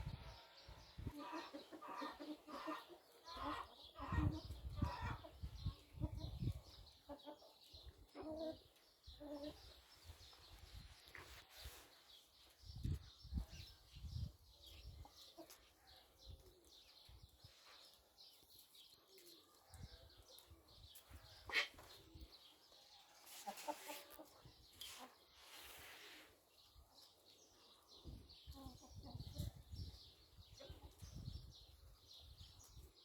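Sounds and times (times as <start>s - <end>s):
chickens calling: 0.0s - 11.8s, 20.1s - 26.0s.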